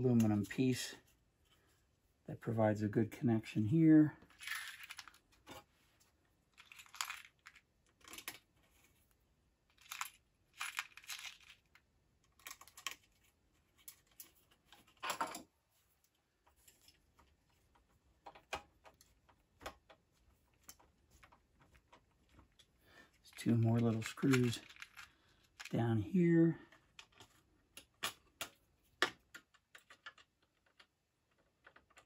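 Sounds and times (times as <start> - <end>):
small metal screws clinking: 4.3 - 5.2, 6.5 - 8.4, 9.7 - 13.1, 23.3 - 25.8.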